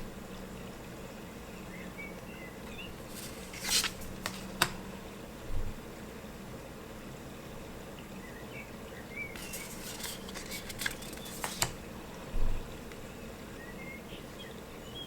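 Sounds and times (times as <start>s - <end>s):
card clicks: 3.0s - 4.8s, 9.4s - 11.8s
cards rustling: 3.0s - 4.8s, 9.4s - 11.8s.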